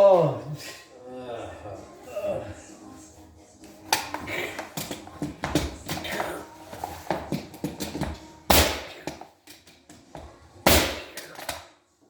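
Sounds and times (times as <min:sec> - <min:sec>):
loud sharp bangs: 0:08.5 - 0:09.0, 0:10.7 - 0:11.2.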